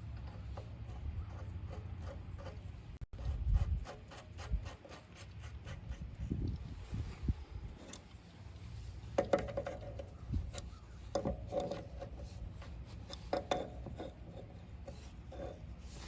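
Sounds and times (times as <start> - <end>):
tools knocking and scraping: 0.0 - 6.0, 9.0 - 16.0.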